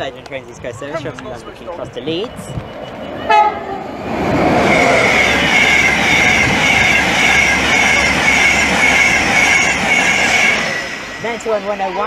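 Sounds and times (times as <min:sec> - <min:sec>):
train rail rush: 0:00.0 - 0:12.0
high pulsing squeal: 0:02.4 - 0:12.0.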